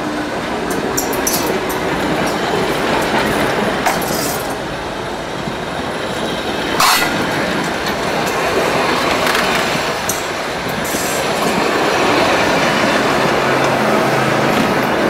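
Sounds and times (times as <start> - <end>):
train wheels rumbling on rails: 0.0 - 15.0
loud clack: 6.8 - 7.4.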